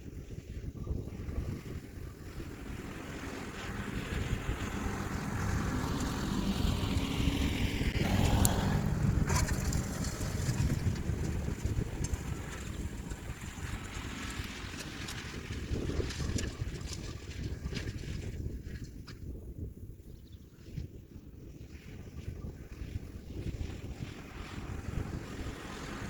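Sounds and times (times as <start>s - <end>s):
wind noise on microphone: 0.0s - 26.0s
tractor diesel engine running: 2.0s - 17.0s.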